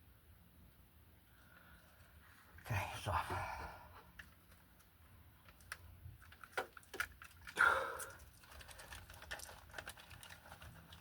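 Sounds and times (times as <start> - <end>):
small clicks and rustles: 4.0 - 11.0.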